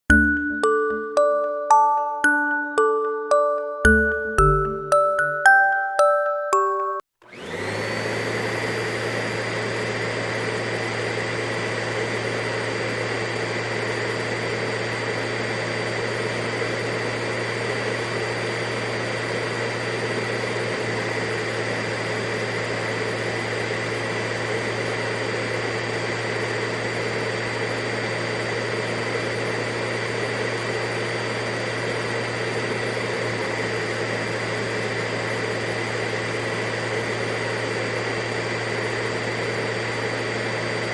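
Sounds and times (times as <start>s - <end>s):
chiming music notes: 0.1s - 7.1s
vacuum cleaner running: 7.2s - 40.9s.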